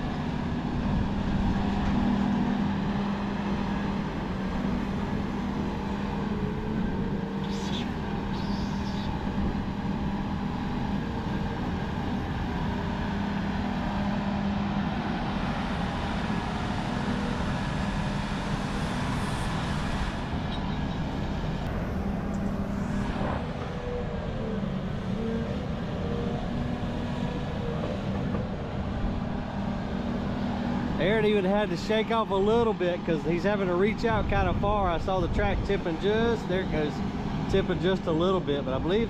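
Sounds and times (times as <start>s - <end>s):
excavator diesel engine under load: 0.0s - 39.0s.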